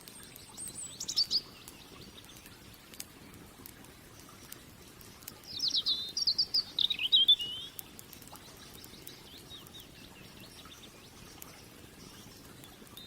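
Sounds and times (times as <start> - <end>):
campfire crackling and popping: 0.0 - 13.0
songbird chirping: 0.1 - 2.8, 5.4 - 13.0.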